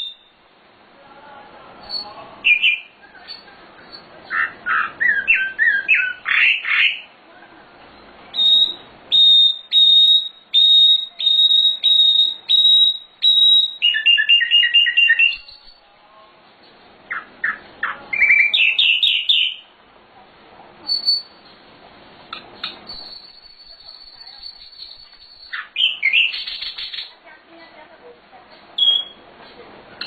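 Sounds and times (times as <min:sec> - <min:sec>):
songbird singing: 0:00.0 - 0:00.4, 0:01.8 - 0:07.2, 0:07.9 - 0:15.9, 0:17.1 - 0:19.7, 0:22.3 - 0:27.2, 0:28.8 - 0:29.2.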